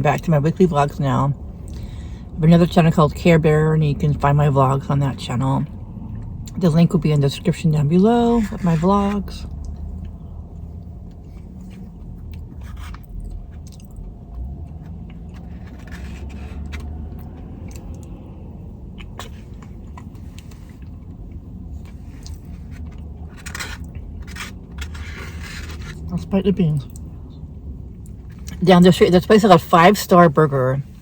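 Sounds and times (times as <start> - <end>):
low steady hum: 0.0 - 31.0
person chewing food: 9.5 - 26.1.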